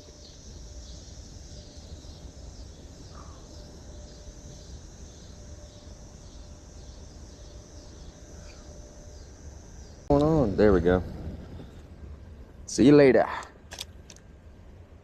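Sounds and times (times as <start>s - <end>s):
insect chorus pulsing: 0.0s - 15.0s
low rumble: 9.3s - 15.0s.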